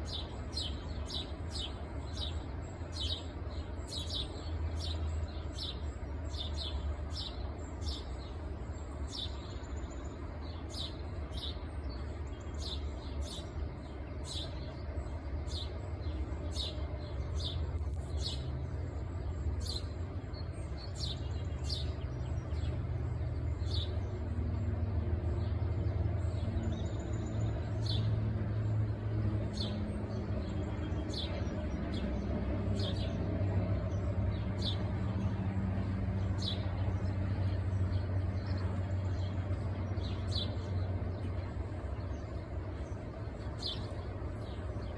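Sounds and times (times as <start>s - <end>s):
bird chirping: 36.2s - 44.9s.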